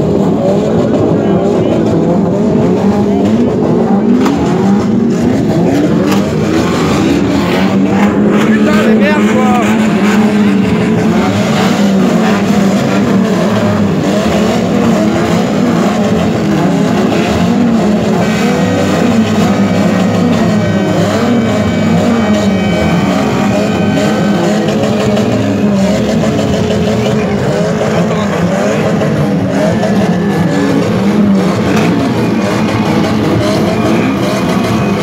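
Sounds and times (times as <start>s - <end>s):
car engines revving: 0.0s - 35.0s
steady high tone: 18.4s - 35.0s.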